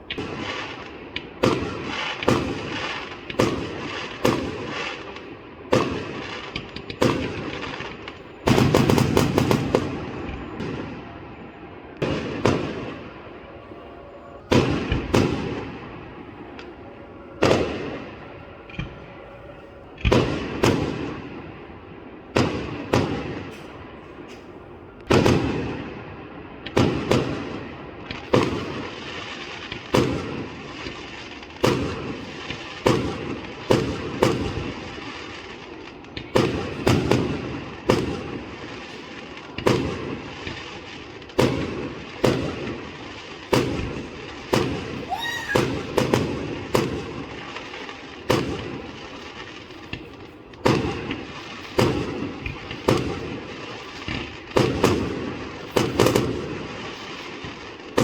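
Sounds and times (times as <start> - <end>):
echoing rumble: 4.5 - 26.6
firework shells bursting: 36.1 - 58.0.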